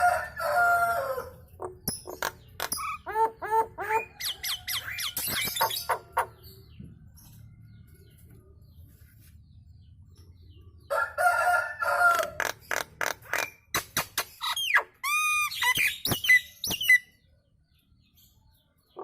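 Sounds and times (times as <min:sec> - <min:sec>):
myna bird chattering: 0:01.6 - 0:06.5, 0:12.4 - 0:17.2.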